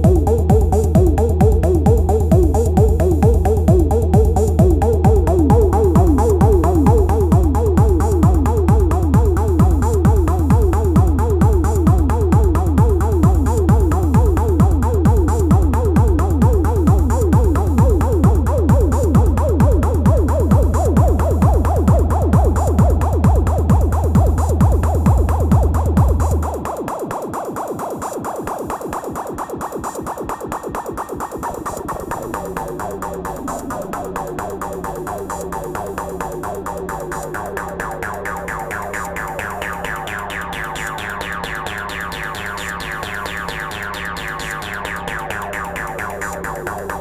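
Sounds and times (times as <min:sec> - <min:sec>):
fast repeating percussion: 0:00.0 - 0:47.0
heavy kick drum: 0:00.0 - 0:47.0
pulsing bass line: 0:00.0 - 0:47.0.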